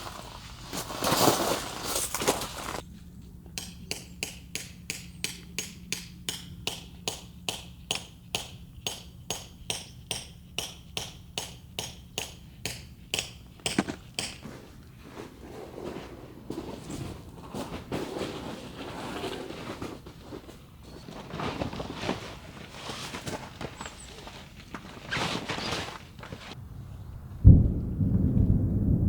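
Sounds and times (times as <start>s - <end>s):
rustling: 0.0s - 2.9s, 13.8s - 26.6s.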